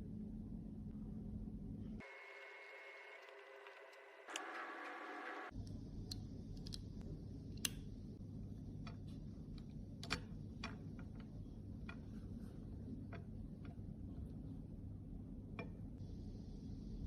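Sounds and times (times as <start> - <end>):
steady low rumble: 0.0 - 2.0, 5.5 - 17.0.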